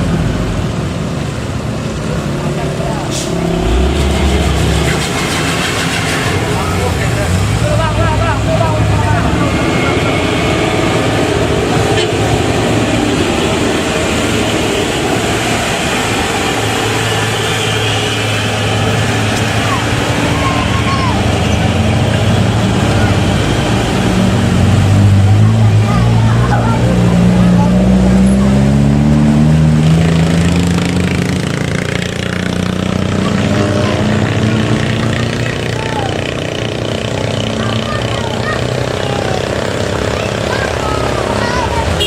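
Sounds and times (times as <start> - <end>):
road noise: 0.0 - 42.0
vehicle engine running: 0.0 - 42.0.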